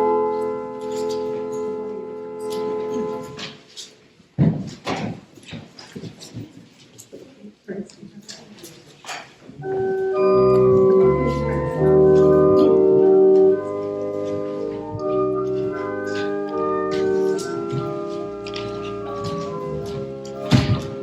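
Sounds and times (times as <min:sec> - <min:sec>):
church organ chords: 0:00.0 - 0:03.4, 0:09.6 - 0:21.0.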